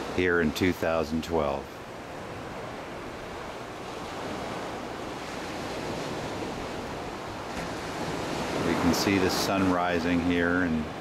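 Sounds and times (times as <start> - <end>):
surf washing on beach: 0.0 - 11.0.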